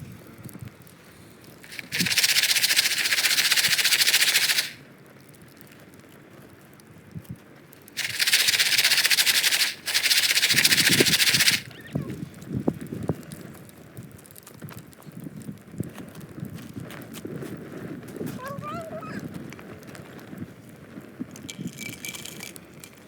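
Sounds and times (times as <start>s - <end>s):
popcorn kernels rattling in pan: 0.8s - 5.7s, 7.8s - 11.8s, 21.3s - 23.0s.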